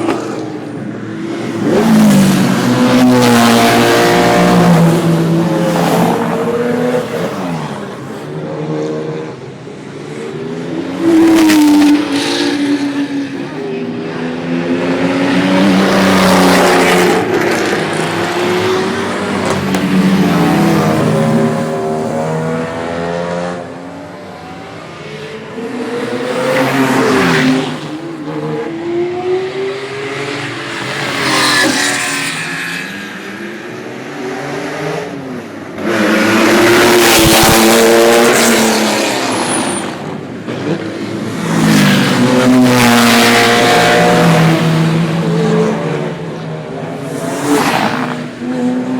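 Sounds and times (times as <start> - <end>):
sports cars revving past: 0.0 - 48.9.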